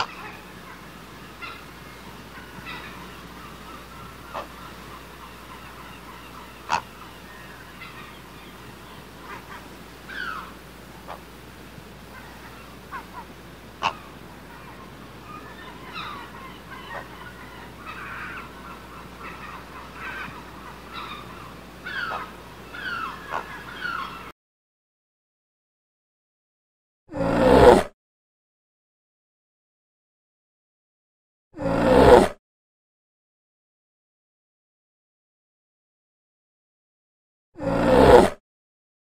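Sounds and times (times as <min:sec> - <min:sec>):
birds chirping and squeaking: 0:00.0 - 0:24.3.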